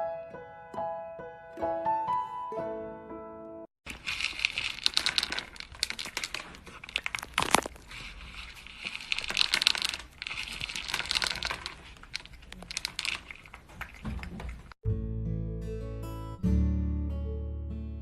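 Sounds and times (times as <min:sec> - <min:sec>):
crinkling crackling rustle: 0:03.8 - 0:14.8.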